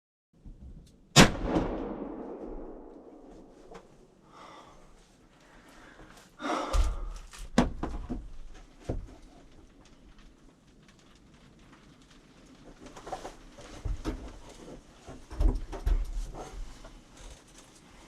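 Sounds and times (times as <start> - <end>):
shotgun shot with echo: 1.2 - 3.7
knocks and thumps of gun handling: 6.8 - 9.1.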